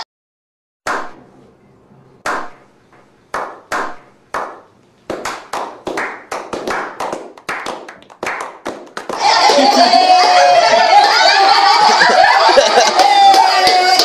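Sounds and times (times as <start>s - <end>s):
slow hand claps: 3.3s - 9.9s
people clapping: 3.3s - 14.0s.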